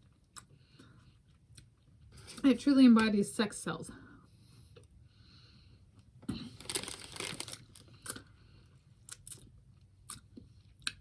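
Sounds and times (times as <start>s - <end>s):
wrapper crinkling: 6.4s - 7.8s.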